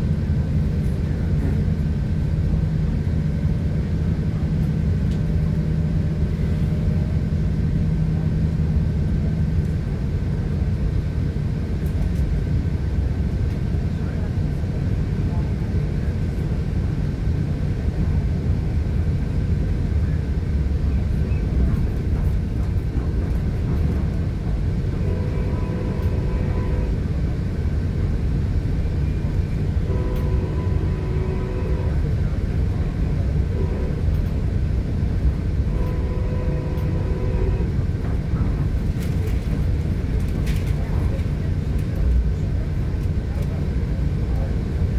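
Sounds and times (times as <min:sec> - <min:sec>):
train coach rumbling: 0:00.0 - 0:44.9
train horn: 0:24.8 - 0:27.0, 0:29.8 - 0:34.4, 0:35.6 - 0:37.8.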